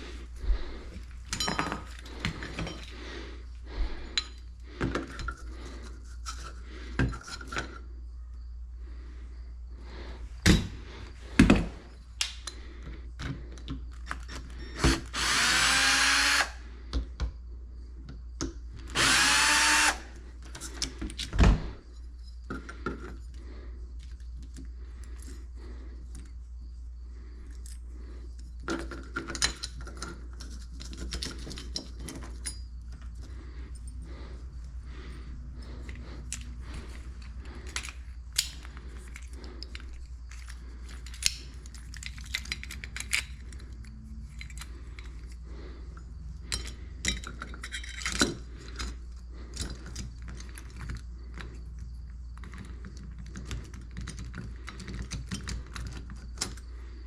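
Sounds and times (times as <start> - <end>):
tool handling knocks and clatter: 0.9 - 3.0, 3.9 - 7.8, 10.4 - 12.0, 28.6 - 33.4, 46.4 - 51.6, 52.4 - 56.7
power drill whirring: 14.2 - 16.6, 18.9 - 20.2.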